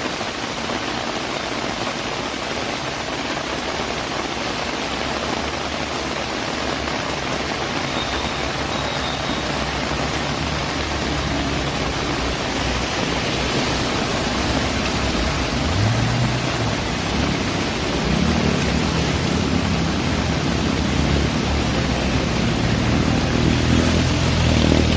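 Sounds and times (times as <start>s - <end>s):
rain and water rushing on street: 0.0s - 24.9s
vehicle engine: 8.5s - 24.9s.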